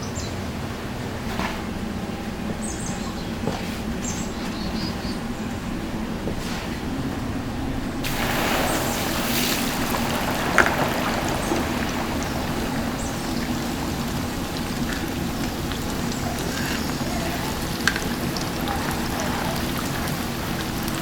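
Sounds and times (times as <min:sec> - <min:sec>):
oil sizzling: 0:08.0 - 0:21.0.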